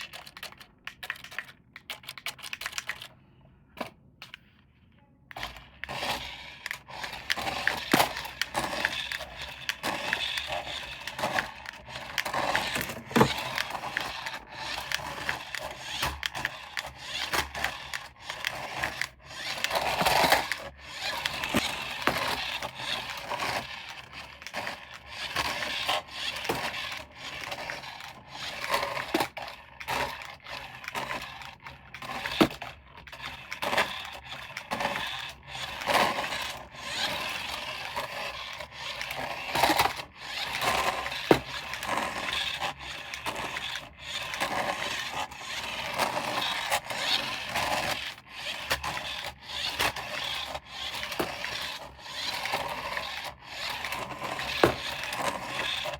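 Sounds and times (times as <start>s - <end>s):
plastic parts and packaging handled: 0.0s - 55.9s.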